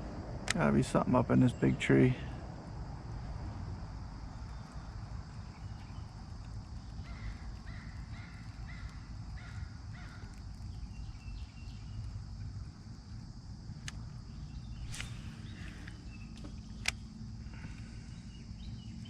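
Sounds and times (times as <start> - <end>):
steady low rumble: 0.0 - 19.0
bird calling: 4.4 - 12.6, 14.2 - 19.0.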